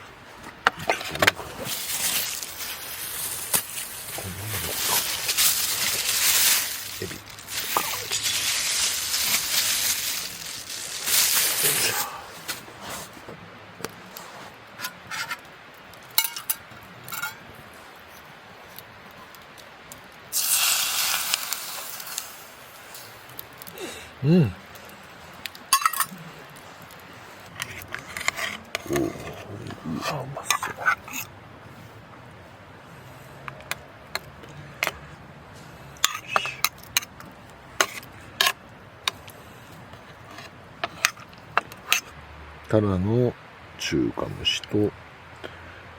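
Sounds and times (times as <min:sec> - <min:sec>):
loud hissing sizzle: 0:01.6 - 0:12.5, 0:20.2 - 0:27.8
metal utensils clinking cookware: 0:04.6 - 0:12.1, 0:16.0 - 0:17.5, 0:25.6 - 0:27.0, 0:36.0 - 0:38.6.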